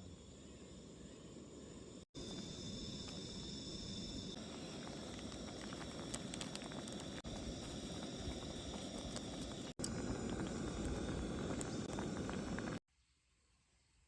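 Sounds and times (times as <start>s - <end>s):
campfire burning and crackling: 2.2s - 12.8s.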